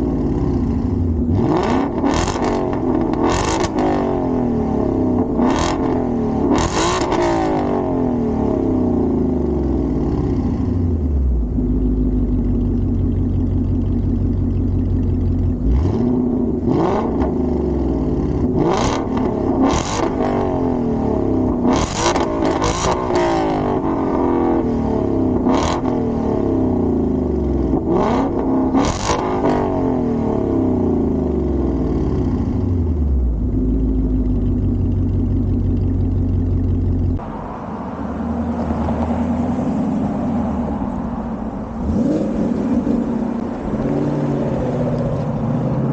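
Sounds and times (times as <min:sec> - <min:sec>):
car engine revving: 0:00.0 - 0:45.9
steady exhaust rumble: 0:30.7 - 0:45.9.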